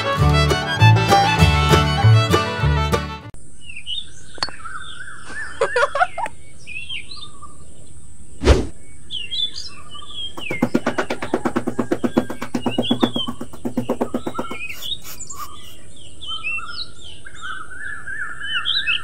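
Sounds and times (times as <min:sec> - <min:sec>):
small birds chirping: 0:03.5 - 0:19.0
thump: 0:08.4 - 0:08.8
trowel scraping sand: 0:10.4 - 0:15.8.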